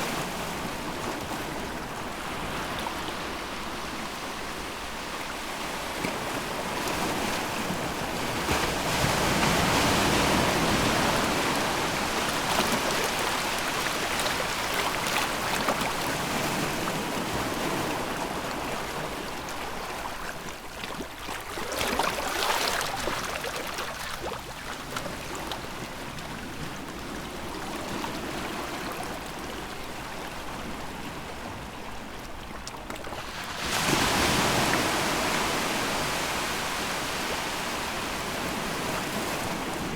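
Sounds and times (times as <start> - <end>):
sea waves washing ashore: 0.0 - 20.4, 33.1 - 39.9.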